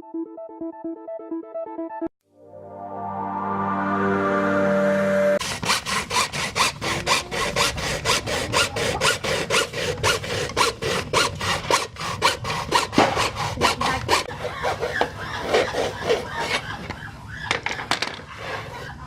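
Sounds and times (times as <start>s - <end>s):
hand saw cutting: 5.4s - 17.0s.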